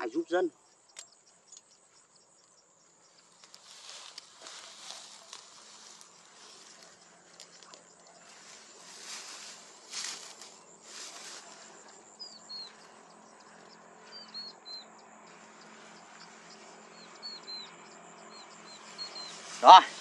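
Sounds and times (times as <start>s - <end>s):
small bird chirping: 0.0s - 20.0s
rustles: 0.9s - 14.4s, 18.4s - 20.0s.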